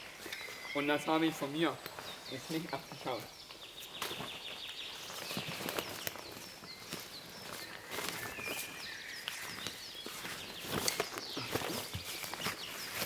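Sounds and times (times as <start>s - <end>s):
high bird chirps: 0.0s - 6.0s
footsteps on forest floor: 0.0s - 13.0s.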